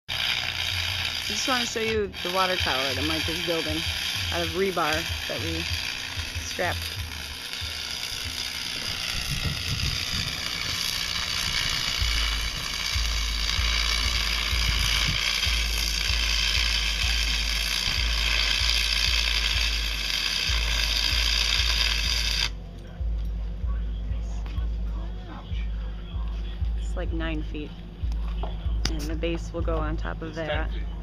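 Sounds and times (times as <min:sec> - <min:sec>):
steady high hiss: 0:00.2 - 0:22.5
wind rumbling on microphone: 0:08.8 - 0:15.4.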